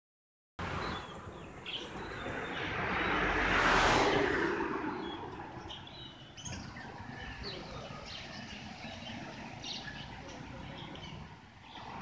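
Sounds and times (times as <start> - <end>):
loud rush of noise: 0.6 - 5.7
cage birds chirping: 0.6 - 12.0.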